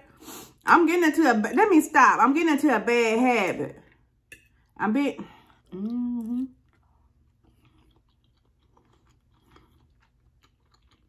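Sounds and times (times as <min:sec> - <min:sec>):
close-up chewing: 0:06.6 - 0:11.0.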